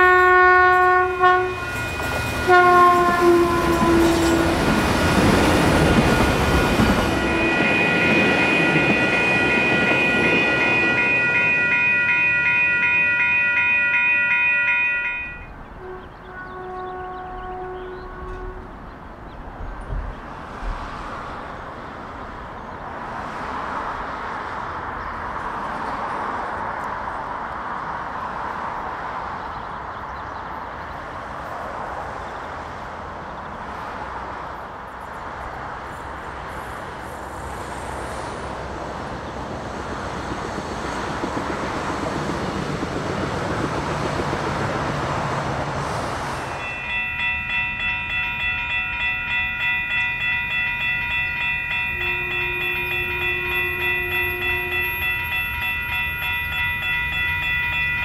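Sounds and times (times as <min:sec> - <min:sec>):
railroad crossing bell ringing: 0:00.0 - 0:18.7, 0:46.2 - 0:58.0
train horn note: 0:00.0 - 0:18.7, 0:51.7 - 0:55.8
train running past on rails: 0:00.0 - 0:58.0.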